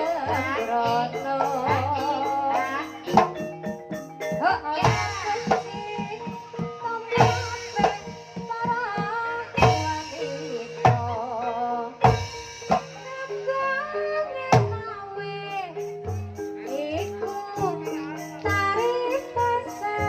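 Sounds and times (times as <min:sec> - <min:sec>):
sharp drum strokes: 0:00.0 - 0:11.4, 0:12.0 - 0:13.9
sustained metallophone tones: 0:00.0 - 0:20.0
woman singing ornamented phrases: 0:00.0 - 0:20.0.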